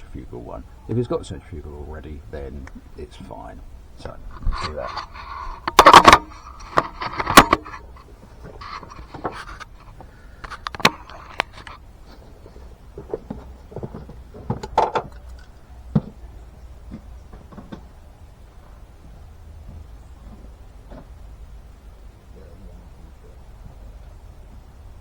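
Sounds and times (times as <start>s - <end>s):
steady low hum: 0.0s - 25.0s
tools and parts clanking: 4.0s - 16.3s.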